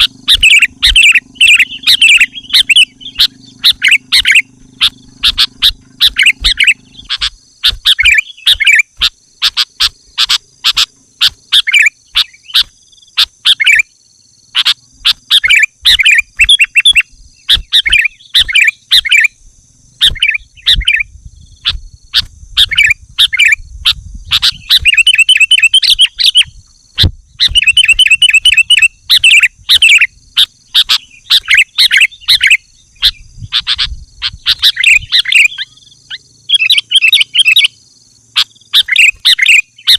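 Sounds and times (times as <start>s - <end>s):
bulbul singing: 0.0s - 39.9s
steady high-pitched whine: 0.0s - 39.9s.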